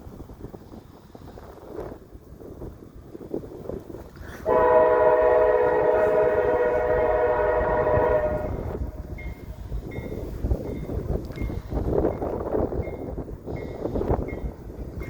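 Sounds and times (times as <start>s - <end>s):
gusty wind on microphone: 0.0s - 15.0s
locomotive air horn blast: 4.4s - 9.1s.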